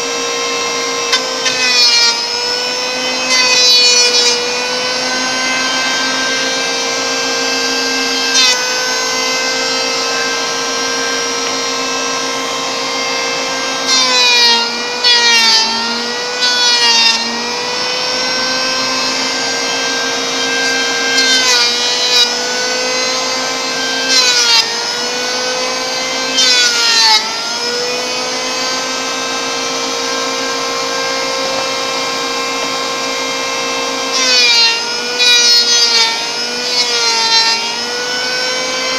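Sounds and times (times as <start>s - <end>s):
electric planer motor whine: 0.0s - 38.9s
planer blades rasping wood: 0.0s - 38.9s.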